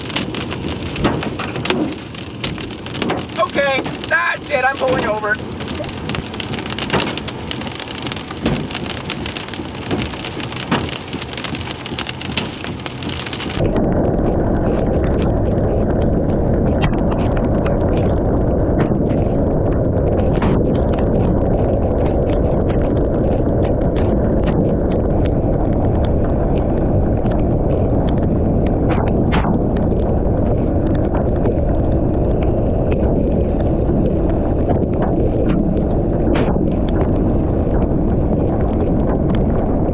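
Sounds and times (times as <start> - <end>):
hail and rain pounding on vehicle: 0.0 - 13.6
hard knocks: 0.1 - 13.6.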